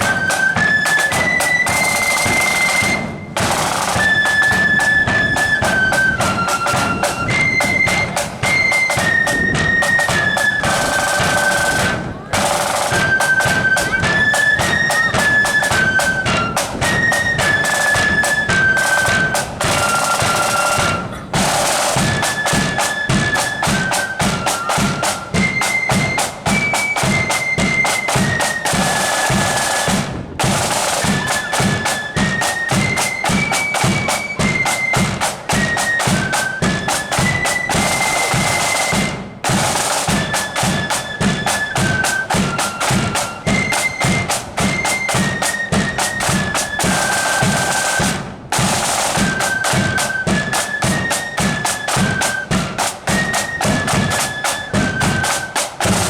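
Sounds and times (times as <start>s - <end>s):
flute melody: 0.0s - 56.0s
side and bass drums: 55.7s - 56.0s.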